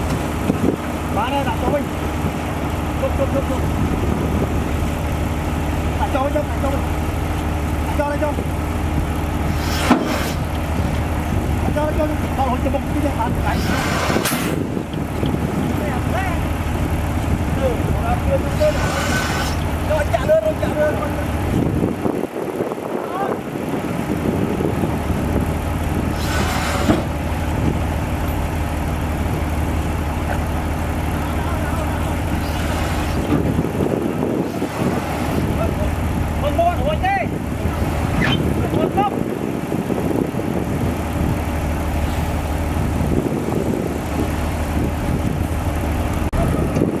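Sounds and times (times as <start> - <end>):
heavy diesel engine running: 0.0 - 47.0
brief hiss: 26.1 - 27.2.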